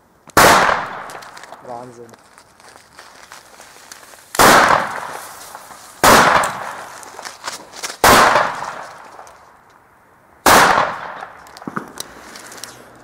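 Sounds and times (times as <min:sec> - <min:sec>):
firecracker bangs: 0:00.4 - 0:01.3, 0:04.4 - 0:07.0, 0:08.0 - 0:09.0, 0:10.4 - 0:12.0.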